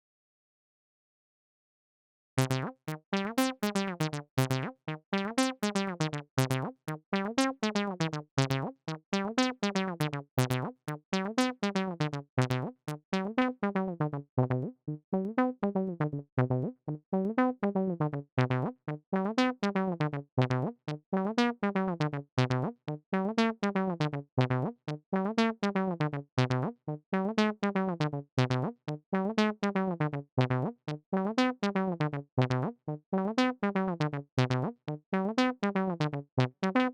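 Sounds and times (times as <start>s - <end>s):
looping bass synth notes: 2.4s - 14.7s.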